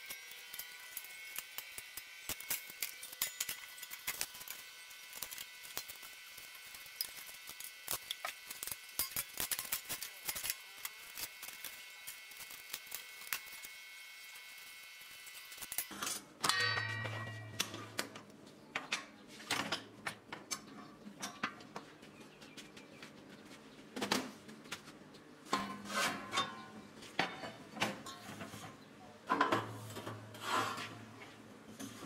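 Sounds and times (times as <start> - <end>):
metal parts clicking and scraping: 0.0 - 13.8, 14.4 - 18.1.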